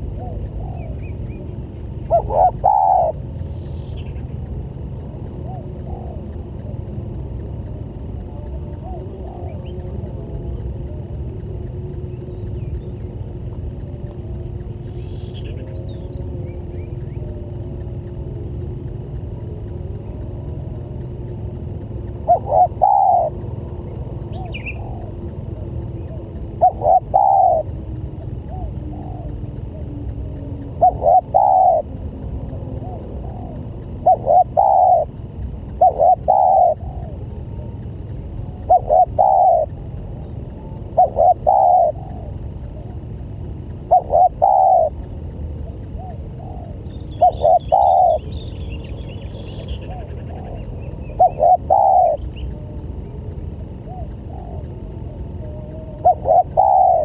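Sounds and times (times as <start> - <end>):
dove cooing: 0.0 - 57.0
steady low hum: 0.0 - 57.0
small bird chirping: 11.9 - 18.2, 21.0 - 57.0.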